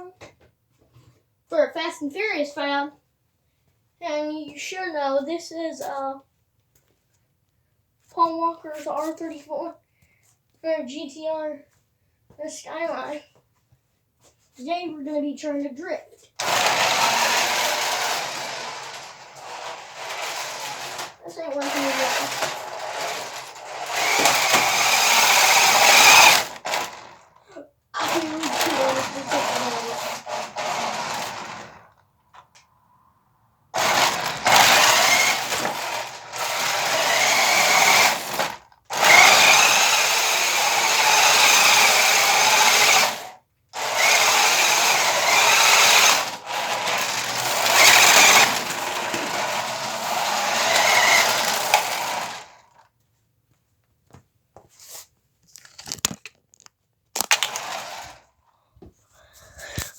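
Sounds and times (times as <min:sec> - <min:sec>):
rc car motor whirring: 0:16.4 - 0:27.2, 0:28.0 - 0:31.9, 0:33.8 - 0:52.8, 0:57.2 - 0:58.3.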